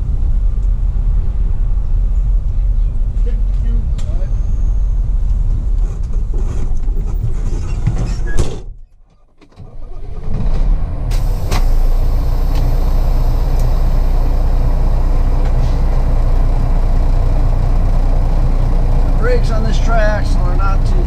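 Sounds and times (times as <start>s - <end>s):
truck diesel engine rumbling: 9.6s - 21.0s.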